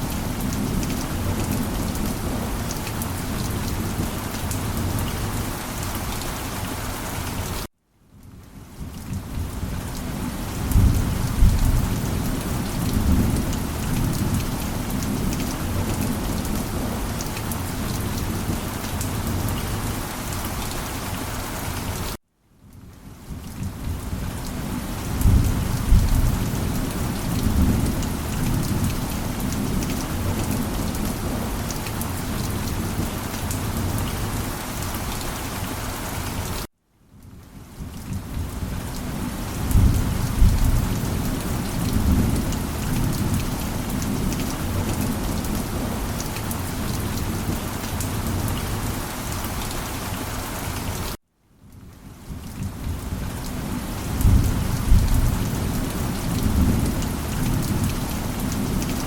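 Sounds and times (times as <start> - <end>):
heavy rain: 0.0 - 59.0
thunder rumbling: 39.6 - 46.1, 54.1 - 58.8.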